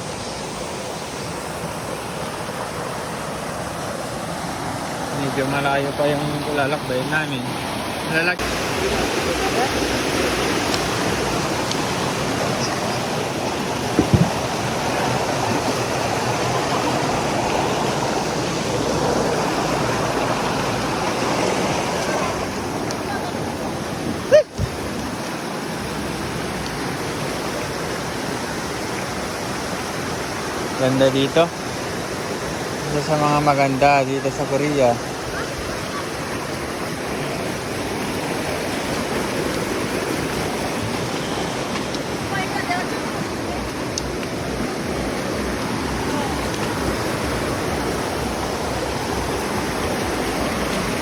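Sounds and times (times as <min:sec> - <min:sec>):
rushing water: 0:00.0 - 0:51.0
brief knock: 0:13.9 - 0:14.4.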